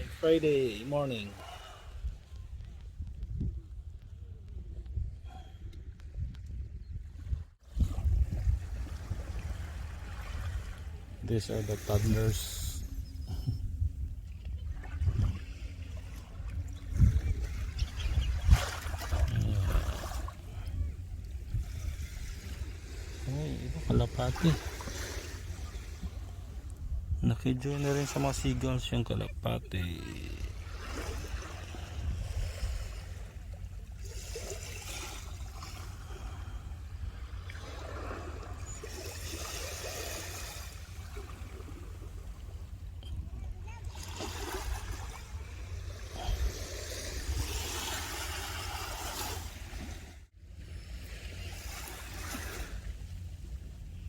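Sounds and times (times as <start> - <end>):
waves washing on shore: 0.0 - 2.3, 7.6 - 13.0, 15.0 - 26.8, 27.7 - 42.4, 43.8 - 53.3
wind buffeting microphone: 1.8 - 11.2, 12.0 - 27.2, 30.6 - 33.4
steady low rumble: 7.8 - 30.9
sea waves washing onto beach: 21.6 - 26.8, 43.7 - 50.2.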